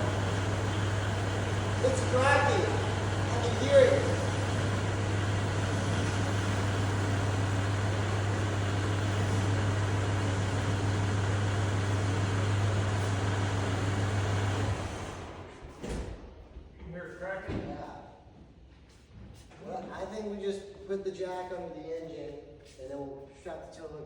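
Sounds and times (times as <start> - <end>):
tractor diesel engine running: 0.0 - 15.5.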